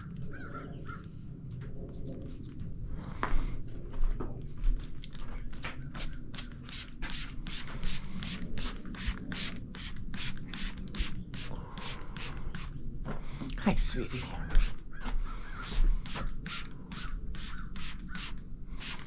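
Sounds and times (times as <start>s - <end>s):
stiff bristle brush strokes: 6.4s - 12.8s, 13.8s - 14.8s, 15.6s - 19.0s.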